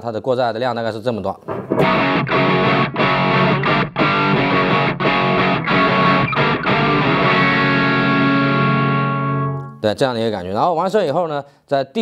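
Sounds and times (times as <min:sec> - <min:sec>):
overdriven electric guitar chords: 0:01.7 - 0:09.8.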